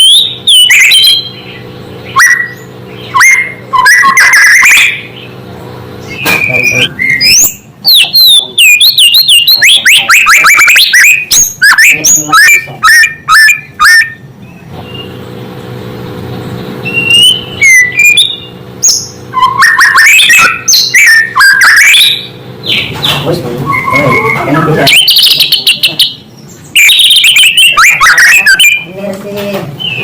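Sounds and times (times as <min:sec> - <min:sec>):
bird singing whistles and chirps: 0:00.0 - 0:05.3, 0:06.0 - 0:14.2, 0:16.8 - 0:28.8.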